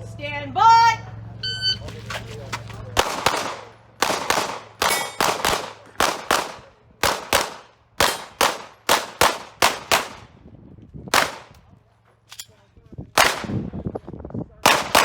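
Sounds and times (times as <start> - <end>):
pistol shots: 2.9 - 10.3, 11.1 - 11.6, 13.2 - 13.6, 14.6 - 15.0.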